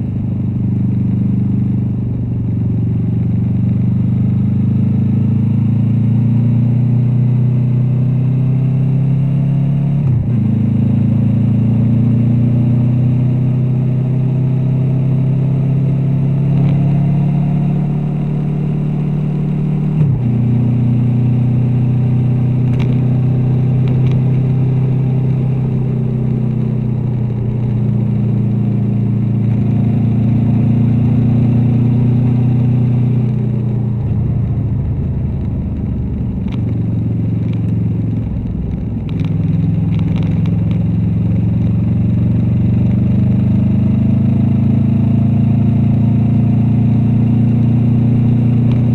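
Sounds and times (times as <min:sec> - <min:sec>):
motorcycle engine running: 0:17.6 - 0:48.9.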